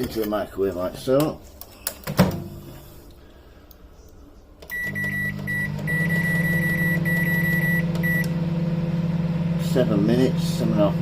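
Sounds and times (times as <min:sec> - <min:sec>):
microwave oven beeping: 0:04.6 - 0:11.0
microwave running hum: 0:04.6 - 0:11.0.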